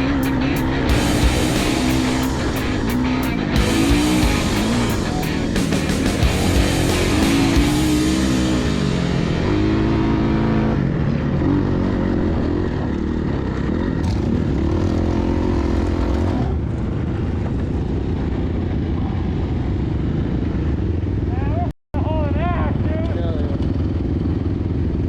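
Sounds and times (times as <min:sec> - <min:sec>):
dirt bike engine revving: 0:00.0 - 0:16.7.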